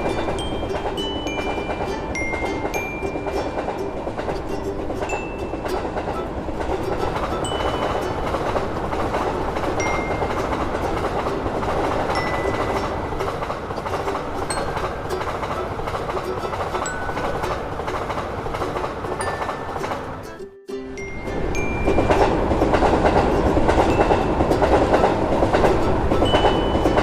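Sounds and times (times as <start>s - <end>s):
electric train running past: 0.0s - 27.0s.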